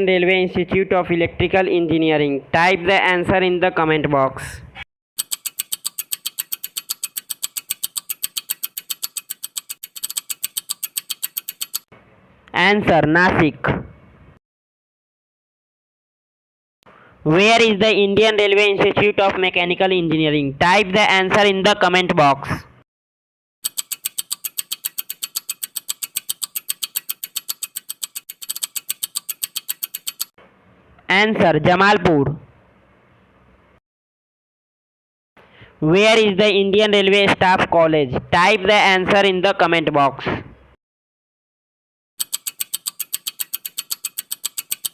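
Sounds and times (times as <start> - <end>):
timer ticking: 5.2 - 11.9, 23.6 - 30.3, 42.2 - 44.9.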